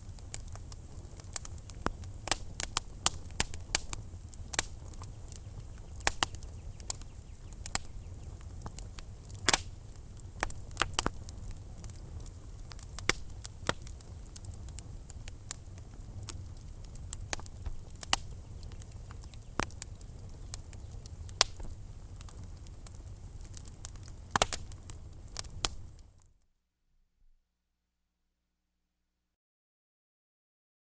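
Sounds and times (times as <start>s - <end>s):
wood fire crackling: 0.0s - 26.3s.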